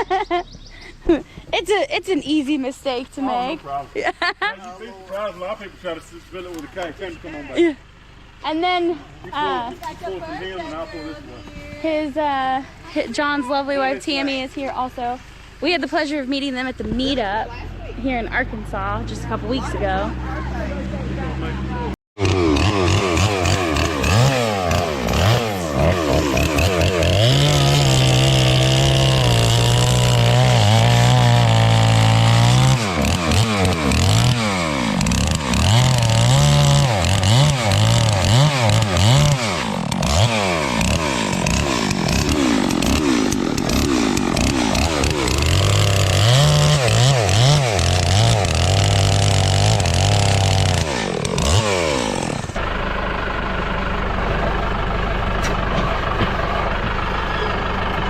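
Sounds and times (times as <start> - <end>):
chainsaw engine revving: 22.2 - 53.3.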